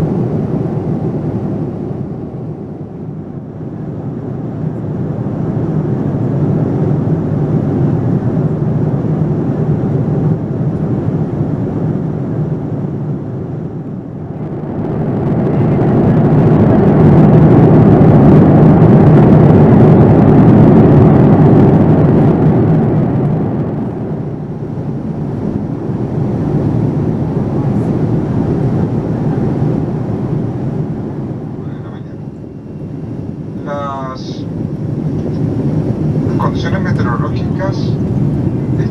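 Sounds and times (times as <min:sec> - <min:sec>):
airplane cabin noise: 0:00.0 - 0:38.9.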